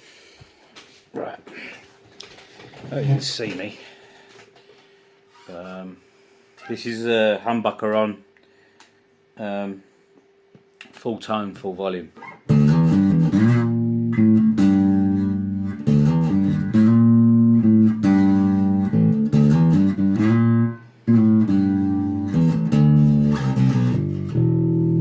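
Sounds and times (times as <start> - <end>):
electric bass plucked notes: 12.5 - 25.0.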